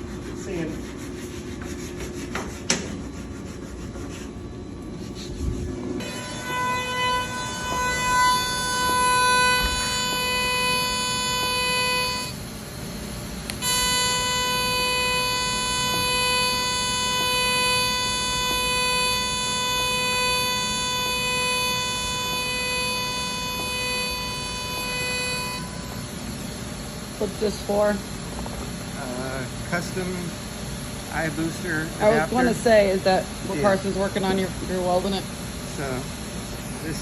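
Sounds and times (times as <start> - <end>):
welding arc buzzing: 4.4 - 29.2.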